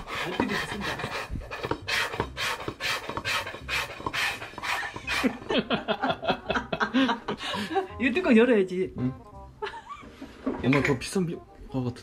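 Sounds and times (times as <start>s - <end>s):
dog panting: 0.0s - 5.4s.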